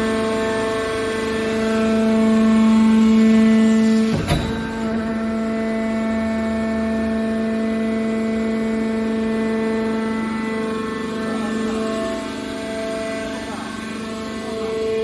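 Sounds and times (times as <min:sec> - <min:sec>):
hydraulic baler humming: 0:03.0 - 0:06.4.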